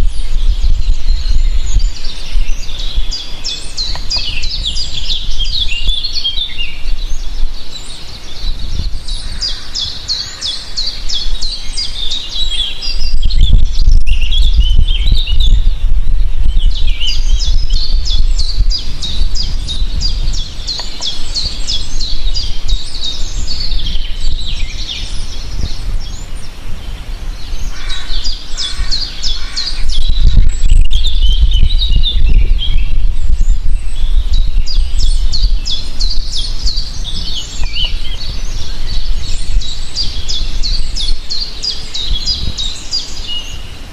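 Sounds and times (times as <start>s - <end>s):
low rumble: 0.0s - 6.2s
birds chirping and trilling: 0.0s - 43.9s.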